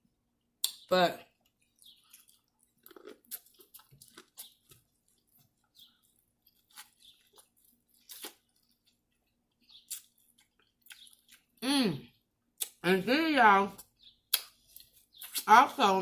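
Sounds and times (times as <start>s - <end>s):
person chewing: 0.6s - 12.8s, 13.8s - 15.5s
wet mouth clicks: 12.6s - 12.8s, 14.3s - 14.6s.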